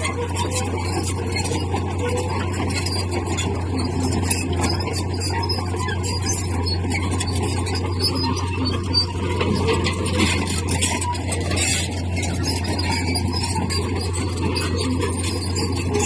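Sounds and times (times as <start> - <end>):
bulldozer diesel engine running: 0.0 - 16.0
steel tracks squealing: 0.0 - 16.0.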